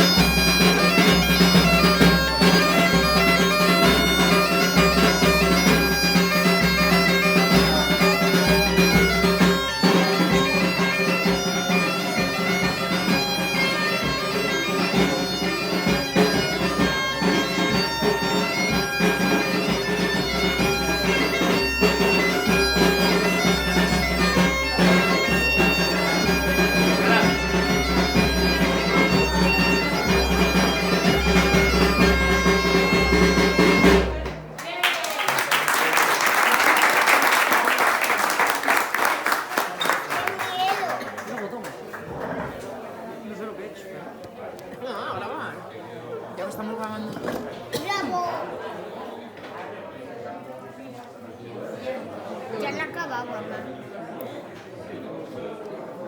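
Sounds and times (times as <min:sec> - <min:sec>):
bagpipe playing over drone: 0:00.0 - 0:34.1.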